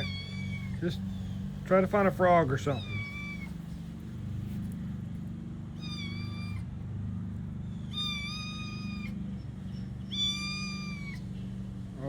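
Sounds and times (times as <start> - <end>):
kitten meowing high-pitched: 0.0 - 0.8, 2.7 - 3.6, 5.8 - 6.7, 7.9 - 9.2, 10.1 - 11.2
steady low hum: 0.0 - 12.0.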